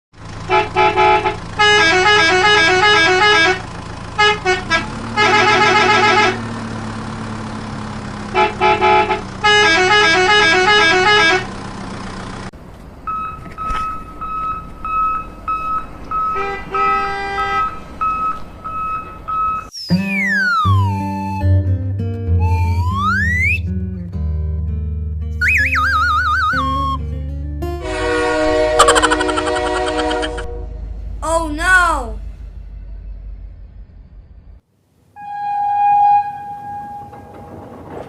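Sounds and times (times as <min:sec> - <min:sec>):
falling whistle: 0:18.0 - 0:21.5, 0:22.4 - 0:23.6, 0:25.4 - 0:27.0, 0:35.2 - 0:37.2
fast beeping horn tones: 0:27.8 - 0:30.7.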